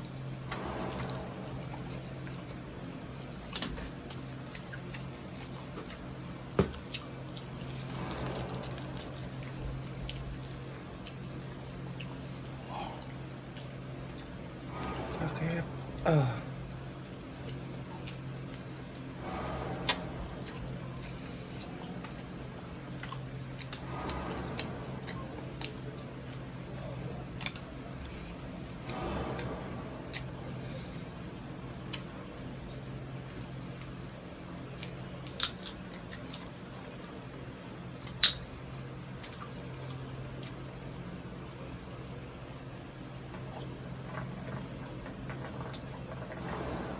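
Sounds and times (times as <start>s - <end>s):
steady low hum: 0.0s - 46.9s
wet squishy chewing: 0.5s - 15.0s, 16.7s - 31.1s, 31.7s - 41.1s
crispy skin crunching: 1.8s - 14.3s, 32.9s - 37.1s.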